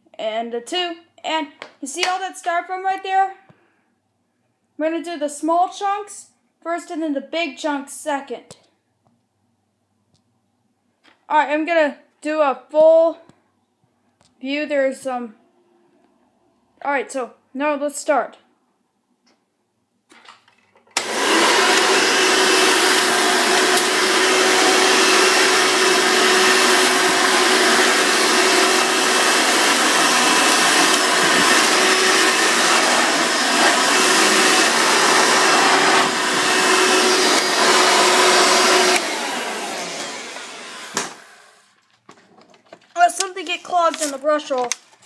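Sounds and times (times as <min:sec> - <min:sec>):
vacuum cleaner running: 0:21.0 - 0:41.8.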